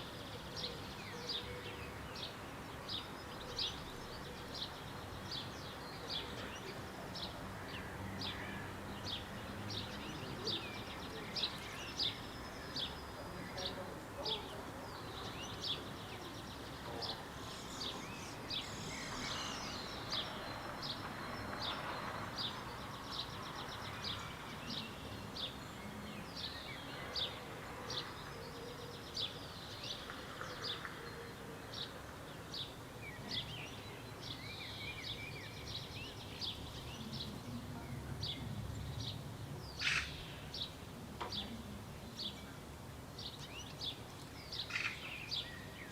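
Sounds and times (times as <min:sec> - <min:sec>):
outdoor background noise: 0:00.0 - 0:45.9
small bird chirping: 0:15.2 - 0:22.5.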